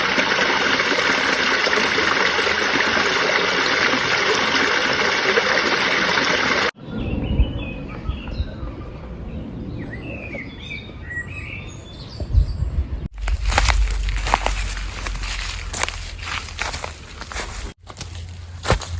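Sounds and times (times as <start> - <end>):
rushing water: 0.0 - 6.8, 13.1 - 17.8
low rumble: 12.4 - 18.9.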